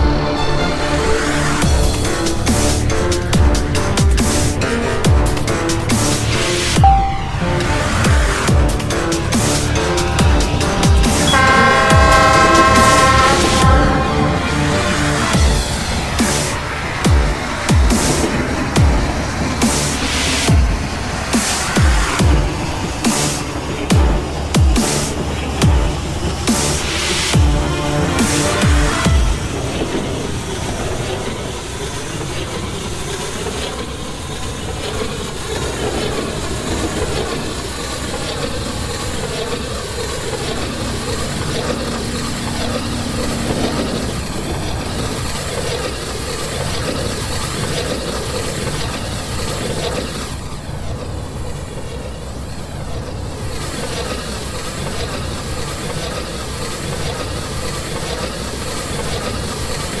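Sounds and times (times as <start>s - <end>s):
train rumbling on rails: 0.0s - 60.0s
faint steady tone: 6.8s - 7.9s.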